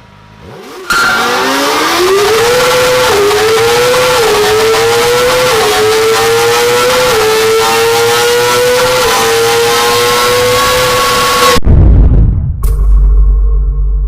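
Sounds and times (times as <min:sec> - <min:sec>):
motorcycle engine screaming at high revs: 0:00.4 - 0:11.6.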